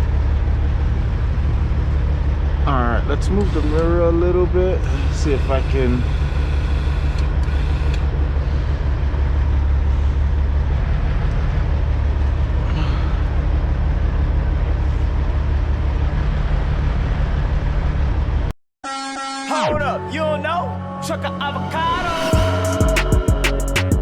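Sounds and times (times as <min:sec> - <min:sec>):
diesel truck engine running: 0:00.0 - 0:18.5.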